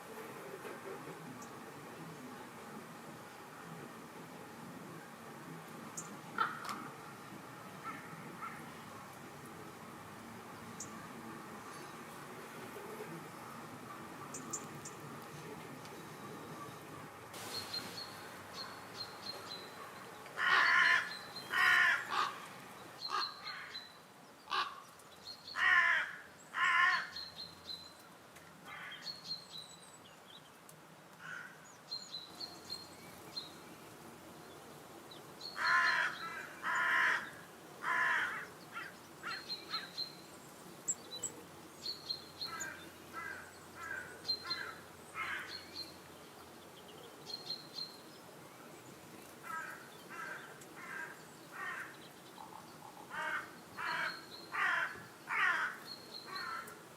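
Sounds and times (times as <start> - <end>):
small birds chirping: 10.6 - 25.8, 26.4 - 56.9
loud harsh bird calls: 20.4 - 22.4, 23.0 - 23.9, 35.4 - 40.2, 42.2 - 45.9, 53.1 - 56.8.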